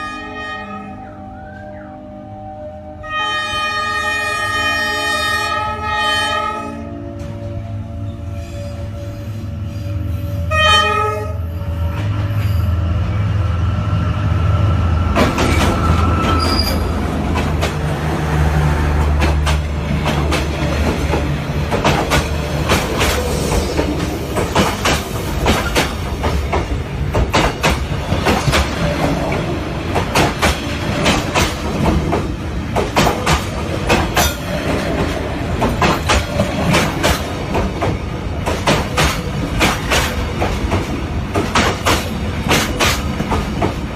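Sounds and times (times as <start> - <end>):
train horn blast: 0.0 - 12.7
train wheel squeal: 8.0 - 10.6, 15.2 - 17.0
train wheels clickety-clack: 15.1 - 43.9.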